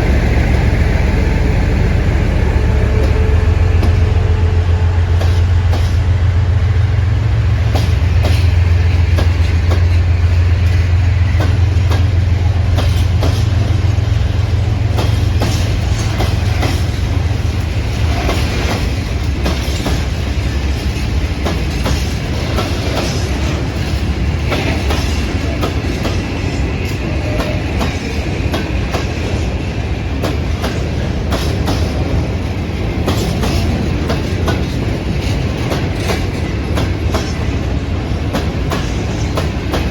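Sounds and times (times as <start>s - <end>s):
low drone: 0.0s - 9.0s
train wheels clicking over rail joints: 2.9s - 39.9s.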